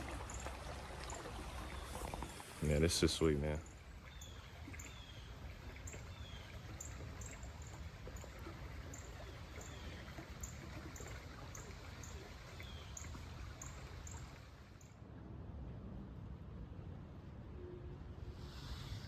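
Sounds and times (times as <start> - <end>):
birds chirping: 0.0 - 7.0
stream running: 0.0 - 15.0.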